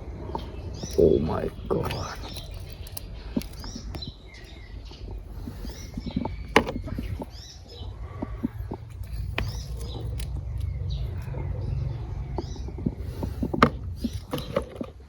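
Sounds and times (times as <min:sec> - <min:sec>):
birds chirping: 0:00.0 - 0:15.0
low handling rumble: 0:00.0 - 0:15.0
sharp clicks: 0:00.3 - 0:07.6, 0:08.2 - 0:11.4.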